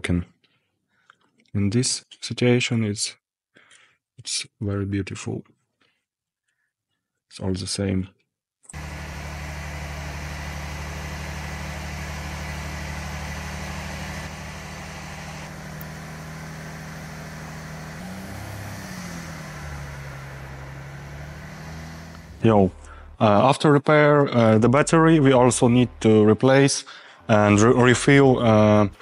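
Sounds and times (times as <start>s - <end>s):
diesel engine idling: 8.8s - 23.2s.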